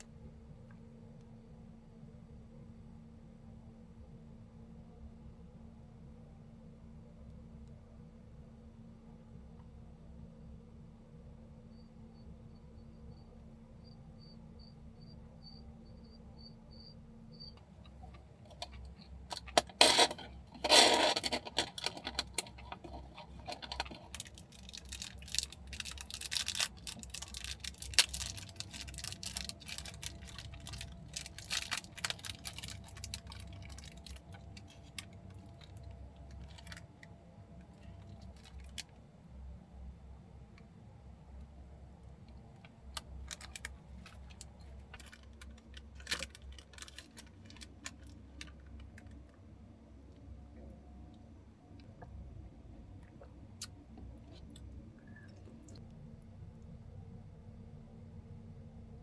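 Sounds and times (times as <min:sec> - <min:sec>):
objects rustling and clattering: 0:17.8 - 0:36.9, 0:37.7 - 0:38.9, 0:43.0 - 0:49.4.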